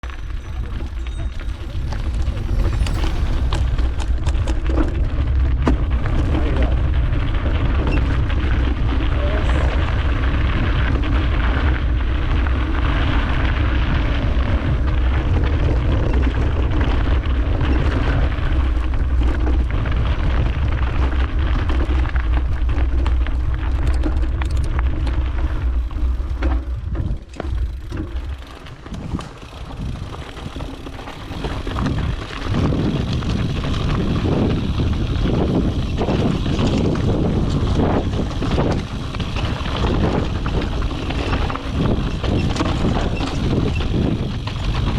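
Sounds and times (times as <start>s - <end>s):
bike tyre noise: 0.0s - 44.9s
wind rumble on microphone: 0.0s - 44.9s
rattle of small clicks: 23.7s - 25.2s.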